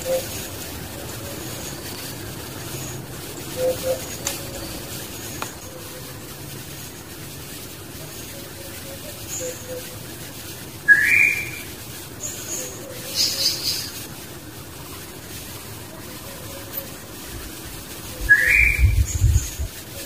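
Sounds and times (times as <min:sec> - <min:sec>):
rising whistled bird calls: 0:03.5 - 0:04.9, 0:10.8 - 0:14.0, 0:18.0 - 0:19.6.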